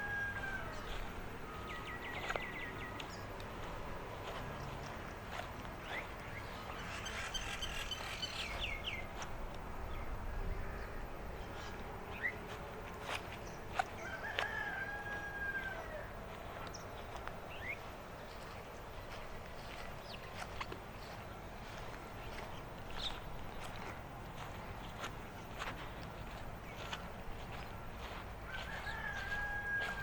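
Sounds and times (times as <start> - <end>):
rooster crowing: 0.0 - 3.7, 13.0 - 17.3, 26.2 - 30.0
footsteps on path: 0.0 - 10.2, 11.2 - 30.0.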